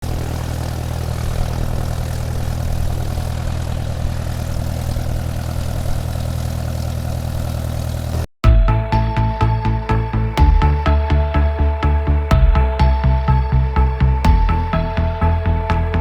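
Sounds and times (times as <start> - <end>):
electric motor propeller whir: 0.0 - 8.2.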